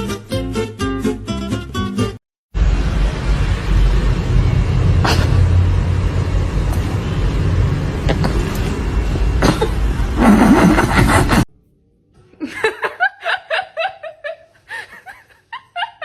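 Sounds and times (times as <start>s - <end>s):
loud low rumble: 2.6s - 10.2s.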